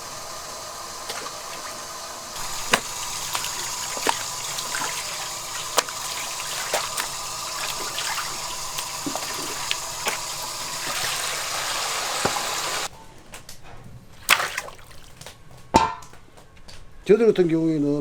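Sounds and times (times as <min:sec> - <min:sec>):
water gushing: 0:00.0 - 0:12.9, 0:14.2 - 0:15.2.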